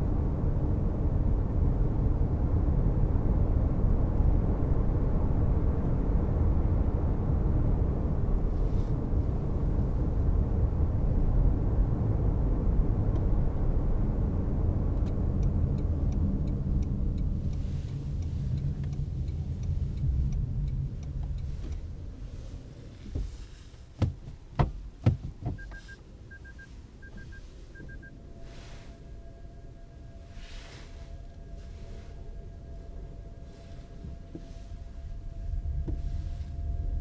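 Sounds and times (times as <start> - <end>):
road and tyre rumble: 0.0 - 37.0
turn signal ticking: 14.7 - 23.4, 24.0 - 28.2.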